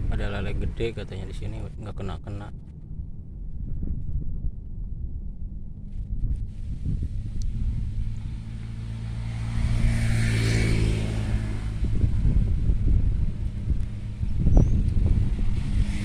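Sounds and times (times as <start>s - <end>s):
steady low rumble: 0.0s - 16.0s
motor vehicle passing by: 5.6s - 16.0s.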